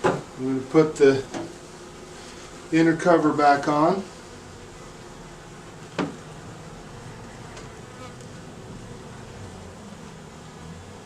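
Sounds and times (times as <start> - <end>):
honeybees buzzing: 0.0 - 11.0
sharp knock: 6.0 - 6.2.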